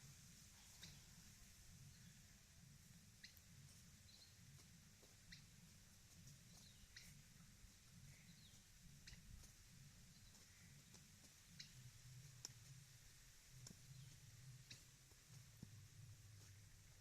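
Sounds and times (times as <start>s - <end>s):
faint clicks: 10.2s - 12.8s, 13.5s - 15.8s.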